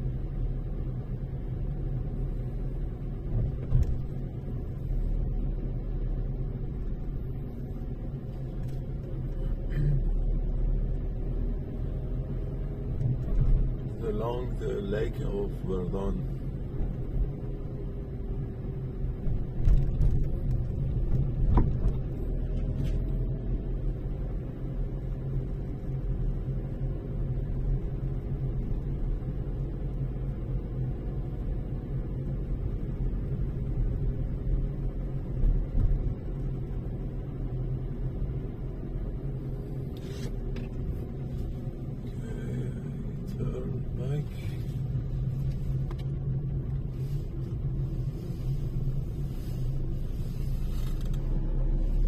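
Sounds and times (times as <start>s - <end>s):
faint steady hum: 0.0s - 52.0s
road and engine rumble: 0.0s - 52.0s.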